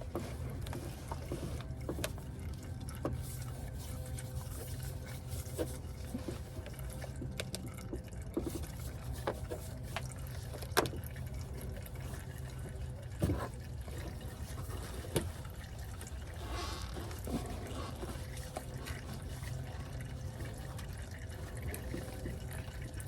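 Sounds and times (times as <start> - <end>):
low steady hum: 0.0 - 23.0
oil draining into pan: 5.7 - 23.0.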